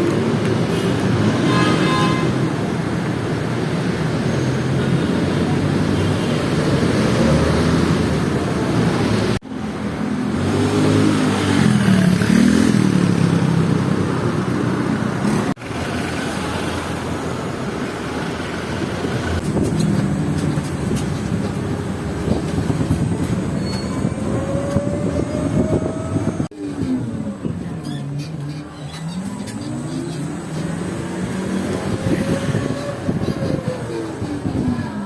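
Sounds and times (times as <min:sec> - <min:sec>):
street traffic noise: 0:00.0 - 0:35.0
vehicle engine revving: 0:24.1 - 0:34.9.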